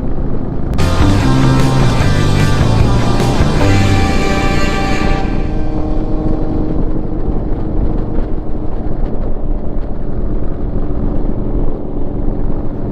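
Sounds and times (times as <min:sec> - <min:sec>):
motorcycle engine rumbling: 0:00.8 - 0:09.3.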